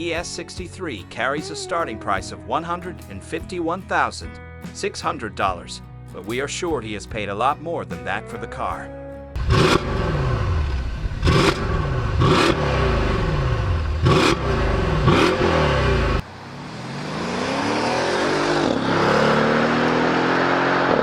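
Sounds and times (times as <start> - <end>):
car engine accelerating: 9.4 - 21.0
car engine revving: 9.4 - 21.0.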